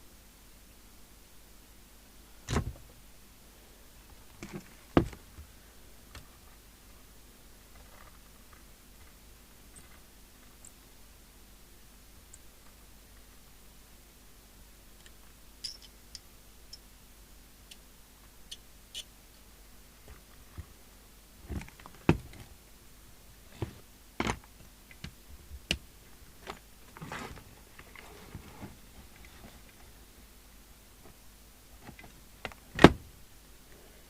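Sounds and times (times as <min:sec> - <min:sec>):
tools and parts clicking: 0:15.0 - 0:16.8.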